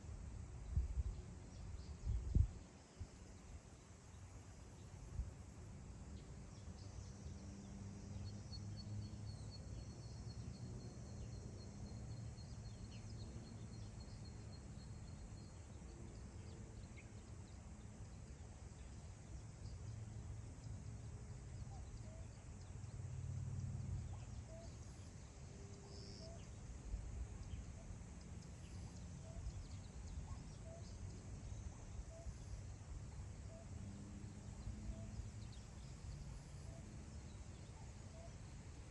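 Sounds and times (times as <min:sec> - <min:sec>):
wind rumbling on microphone: 0:00.4 - 0:03.4.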